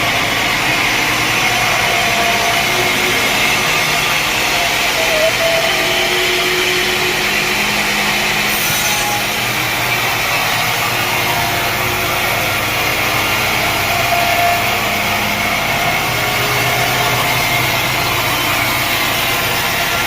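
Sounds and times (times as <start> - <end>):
faint machinery tones: 0.0 - 20.0
saw cutting through wood: 0.0 - 20.0.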